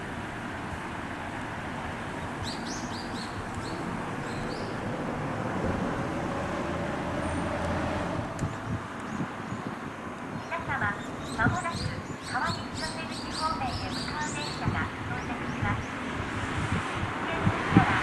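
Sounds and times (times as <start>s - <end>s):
electric train rumble: 0.0s - 9.2s
small birds chirping: 2.2s - 4.8s, 8.4s - 16.0s.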